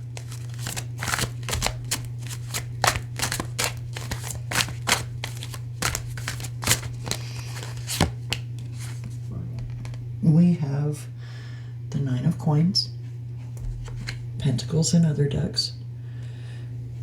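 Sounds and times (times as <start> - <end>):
cards being shuffled: 0.0 - 10.0
steady low hum: 0.0 - 17.0.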